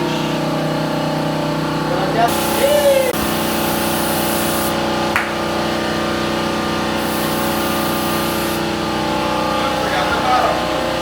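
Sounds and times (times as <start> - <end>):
machine hum: 0.0 - 11.0
air spray gun hissing: 2.3 - 4.8, 6.9 - 8.7.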